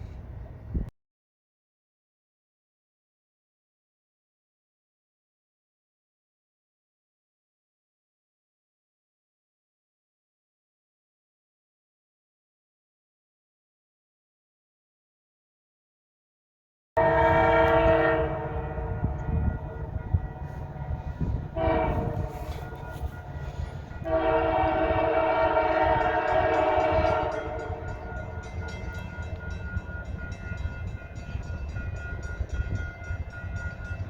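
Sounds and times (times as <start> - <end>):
low rumble of moving train: 0.0 - 0.9, 17.0 - 34.0
locomotive air horn: 17.0 - 29.6.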